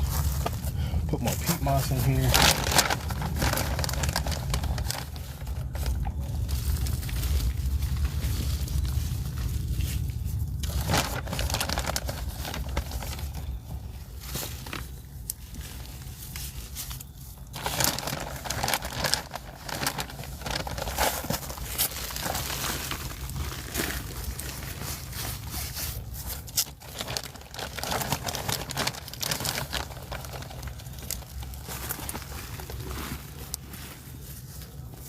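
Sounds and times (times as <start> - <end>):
bag crinkling and crackling: 0.0 - 35.0.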